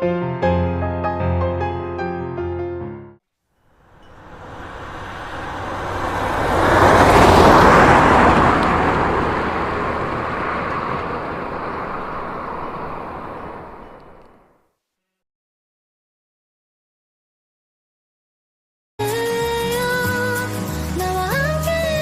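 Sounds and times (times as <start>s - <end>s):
broad rushing noise: 3.8s - 14.5s.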